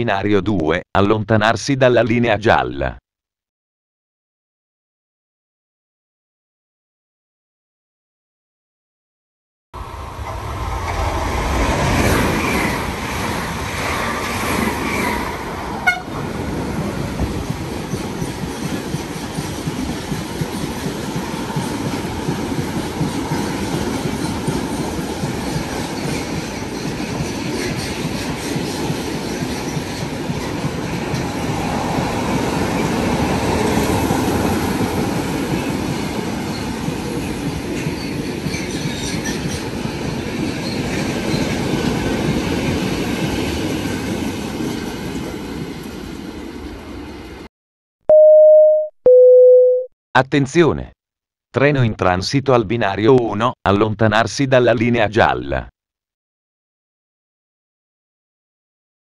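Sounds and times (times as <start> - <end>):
train wheels on track: 9.8 - 47.4.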